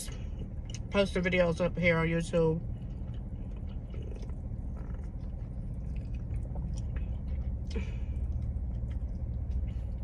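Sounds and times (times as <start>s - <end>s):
steady low hum: 0.0s - 10.0s
chewing and biting chicken wing: 2.7s - 10.0s.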